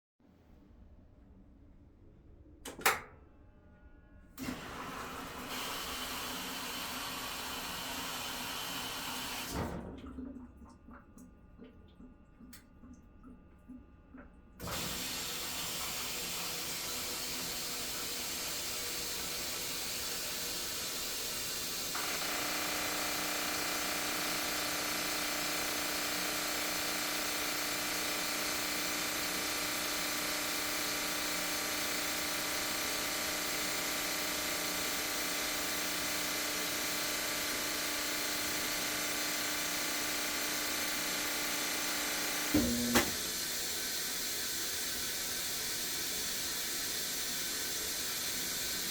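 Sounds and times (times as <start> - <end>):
water hissing into washer tub: 4.4 - 10.0, 14.6 - 48.9
steady buzzing hum: 21.8 - 43.3.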